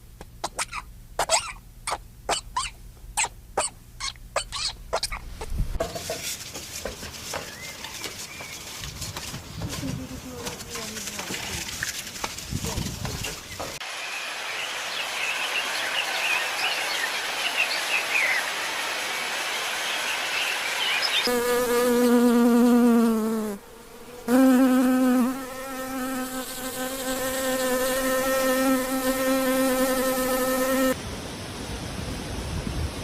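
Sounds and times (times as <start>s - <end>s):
flying insect buzzing: 21.2s - 31.0s.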